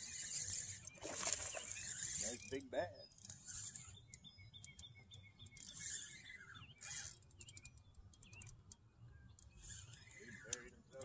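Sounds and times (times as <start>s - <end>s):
fishing reel clicks: 0.0s - 4.8s, 5.4s - 8.8s
songbirds chirping: 0.0s - 11.0s.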